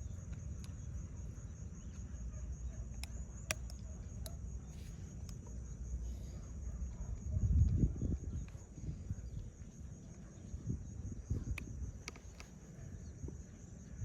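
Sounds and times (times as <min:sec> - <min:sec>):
insect chirring: 0:00.0 - 0:14.0
sharp clicks: 0:02.9 - 0:04.4.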